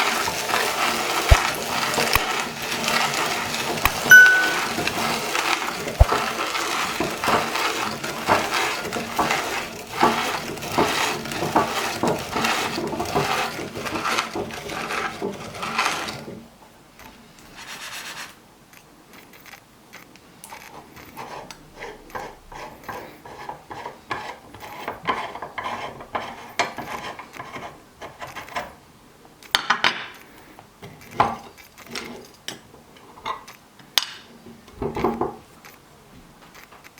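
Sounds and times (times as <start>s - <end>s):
plastic parts scraping: 0.0s - 16.4s, 30.1s - 32.5s.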